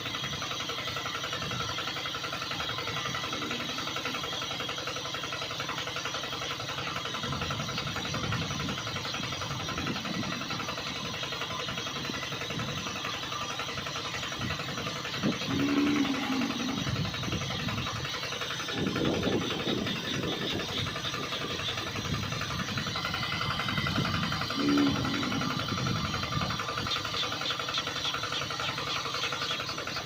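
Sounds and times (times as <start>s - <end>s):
small motor buzzing: 0.0s - 30.0s.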